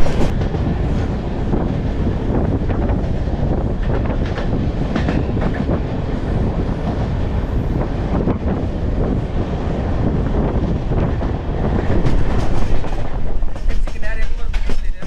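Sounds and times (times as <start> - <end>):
train coach rumble: 0.0 - 15.0
wheels clicking over rail joints: 11.0 - 15.0.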